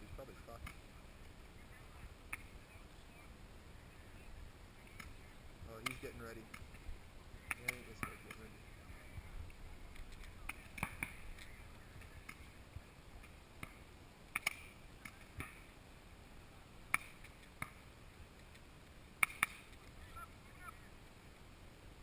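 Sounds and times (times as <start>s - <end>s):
paintball marker shots popping: 5.8s - 6.8s, 7.5s - 8.5s, 13.6s - 15.6s, 16.9s - 17.8s, 19.2s - 19.8s.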